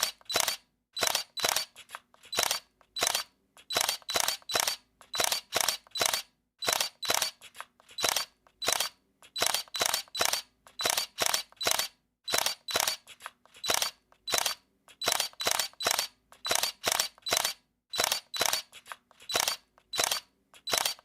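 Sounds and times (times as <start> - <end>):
camera shutter clicking: 0.0 - 21.0.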